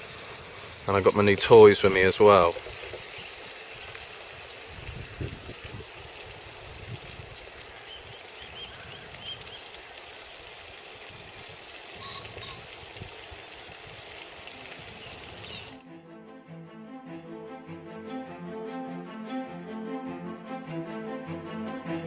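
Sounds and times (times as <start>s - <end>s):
faint high chirps: 12.0s - 12.6s.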